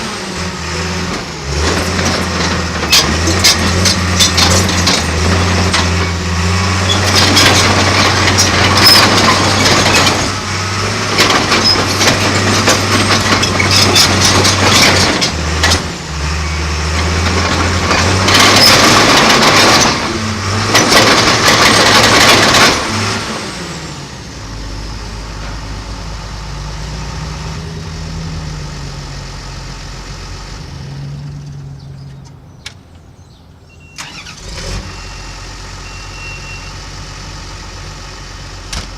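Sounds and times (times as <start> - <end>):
engine clattering: 0.0 - 23.9, 34.0 - 34.8
bulldozer diesel engine running: 0.0 - 38.9.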